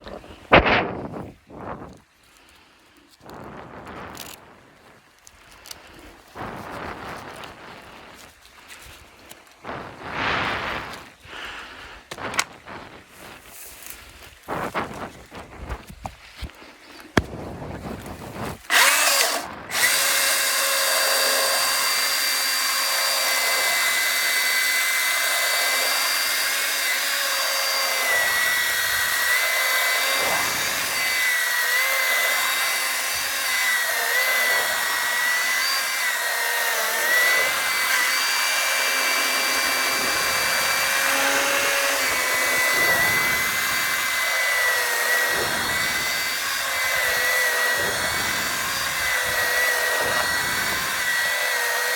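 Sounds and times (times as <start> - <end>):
electric chainsaw whining: 18.0 - 51.9.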